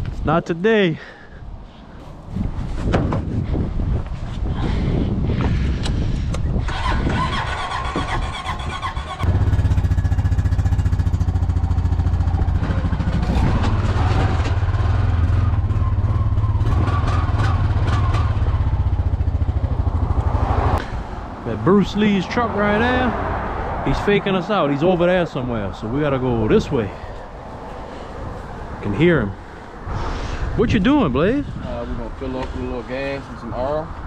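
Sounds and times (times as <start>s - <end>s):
vehicle engine droning: 6.7s - 30.6s.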